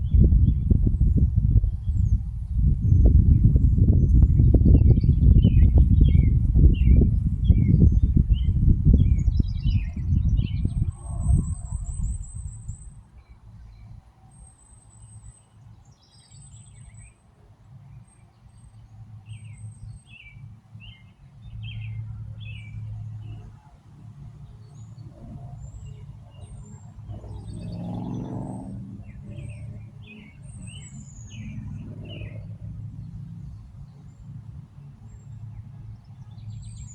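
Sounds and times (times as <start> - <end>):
birds chirping: 17.9 - 36.9.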